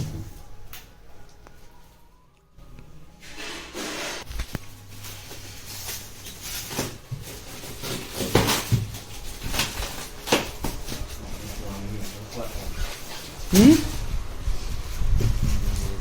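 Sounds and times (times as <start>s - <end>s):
packaging rustling and knocking: 4.2s - 13.4s.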